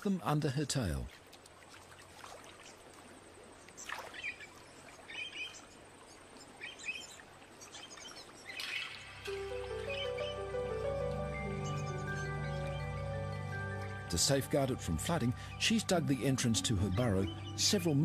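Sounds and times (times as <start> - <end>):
faint outdoor ambience: 0.0 - 18.0
soft background music: 8.9 - 18.0.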